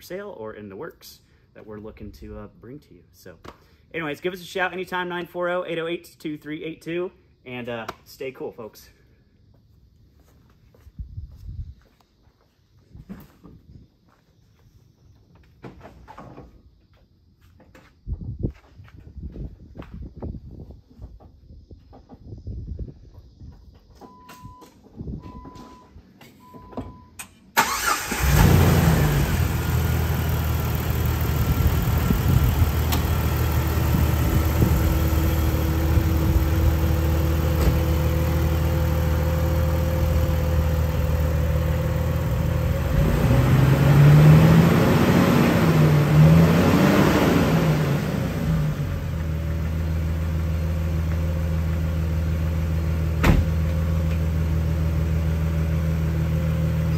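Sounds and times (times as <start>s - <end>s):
engine cranking and idling: 27.6s - 43.7s
engine revving: 27.6s - 49.3s.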